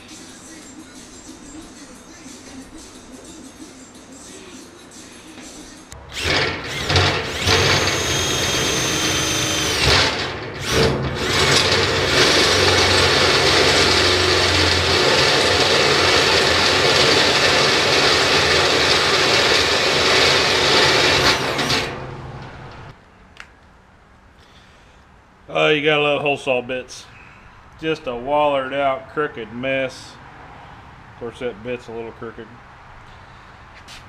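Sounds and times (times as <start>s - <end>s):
drill cutting through metal: 6.1s - 22.0s.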